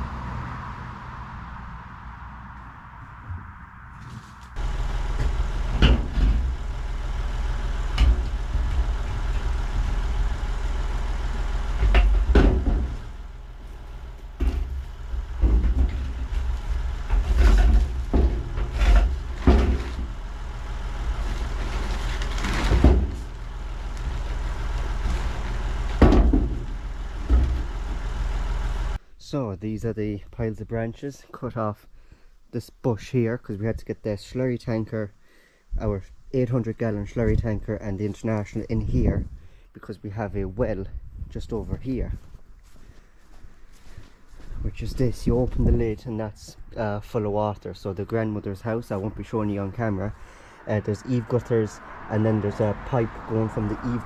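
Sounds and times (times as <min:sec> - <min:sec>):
sharp knocks and rattles: 0:04.6 - 0:28.2
diesel tractor engine running: 0:04.6 - 0:29.0.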